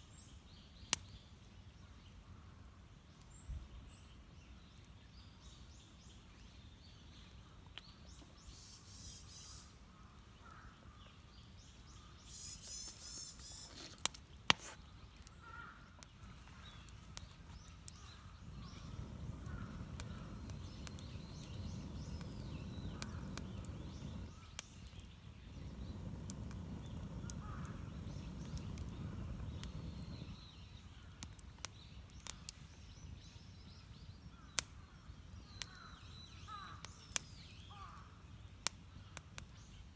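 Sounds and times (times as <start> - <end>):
birds chirping: 5.3 - 39.9
sharp pops or cracks: 17.1 - 30.2.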